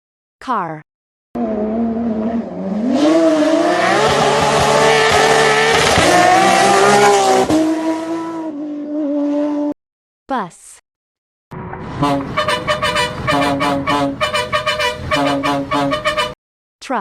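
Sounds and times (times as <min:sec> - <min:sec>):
car engine revving: 0:01.4 - 0:09.8, 0:11.5 - 0:16.3.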